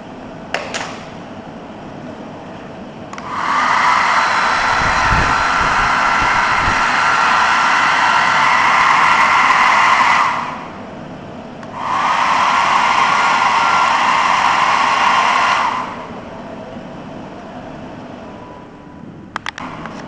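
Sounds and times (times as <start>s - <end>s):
hair dryer blowing: 3.2s - 10.8s, 11.6s - 16.5s.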